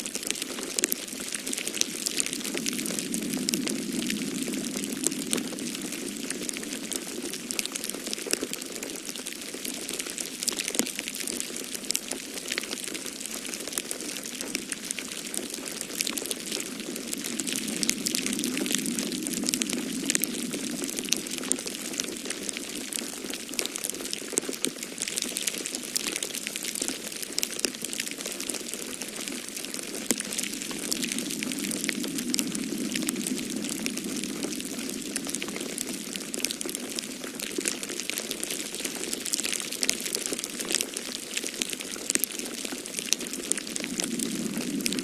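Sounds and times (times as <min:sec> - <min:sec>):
rushing wind: 0:00.0 - 0:08.3, 0:14.3 - 0:23.4, 0:29.1 - 0:39.2, 0:42.8 - 0:45.0
wood fire crackling: 0:00.0 - 0:45.0.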